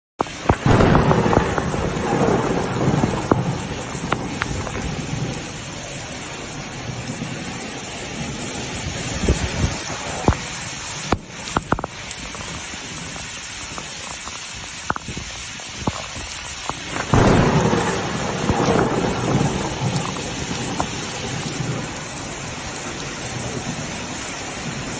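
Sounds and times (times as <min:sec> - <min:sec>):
heavy rain: 0:00.2 - 0:24.9
storm wind: 0:00.2 - 0:24.9
deep rumbling: 0:00.6 - 0:05.7
sharp knocks and pops: 0:11.1 - 0:11.9.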